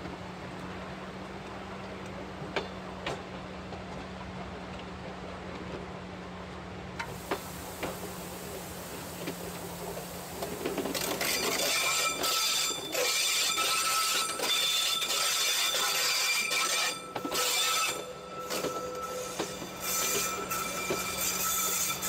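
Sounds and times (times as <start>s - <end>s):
train wheels squealing: 10.4s - 22.0s.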